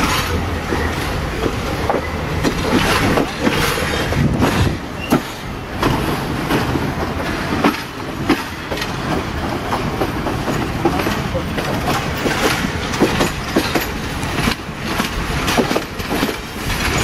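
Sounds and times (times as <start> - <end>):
train low rumble: 0.0 - 17.0
train wheels clacking: 0.0 - 17.0.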